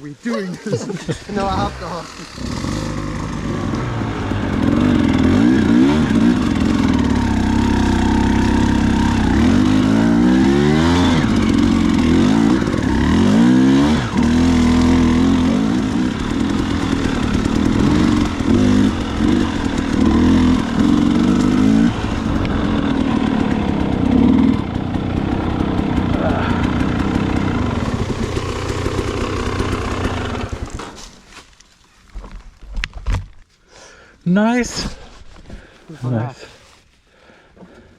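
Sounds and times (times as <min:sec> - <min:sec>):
dirt bike engine revving: 0:00.8 - 0:31.0.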